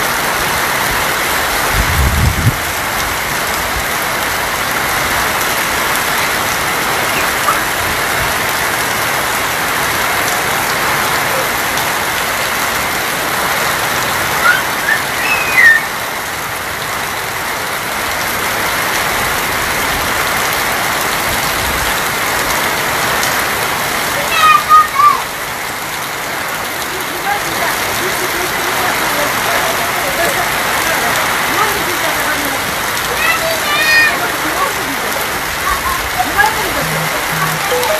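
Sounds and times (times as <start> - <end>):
heavy rain on a tin roof: 0.0 - 37.9
short high chirps: 36.8 - 37.9.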